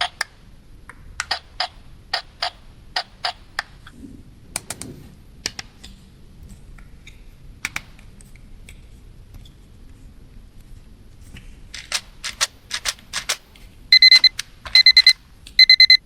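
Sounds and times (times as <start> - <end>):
plastic toy pieces clicking: 11.7 - 15.9.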